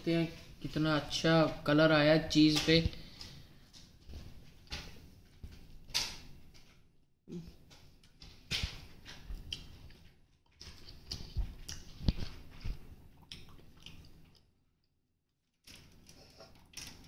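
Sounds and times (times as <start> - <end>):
person chewing food: 6.6 - 14.6
mouth clicks and smacks: 10.8 - 14.5.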